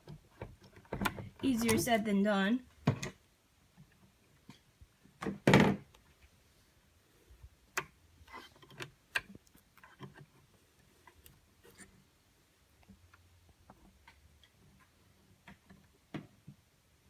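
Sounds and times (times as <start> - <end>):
small clicks of tools and plastic: 7.7 - 10.4.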